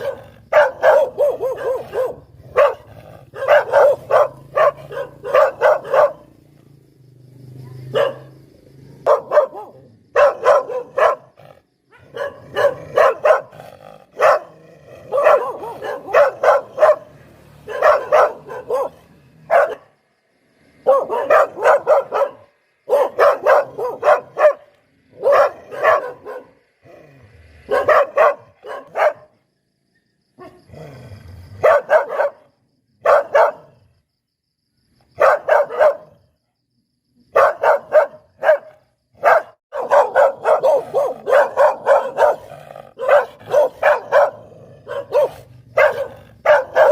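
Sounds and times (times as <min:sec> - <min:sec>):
dog barking: 0:00.0 - 0:06.4, 0:07.5 - 0:08.4, 0:09.0 - 0:20.0, 0:20.8 - 0:26.7, 0:27.6 - 0:29.4, 0:30.4 - 0:30.7, 0:31.5 - 0:33.9, 0:35.2 - 0:36.3, 0:37.3 - 0:46.9.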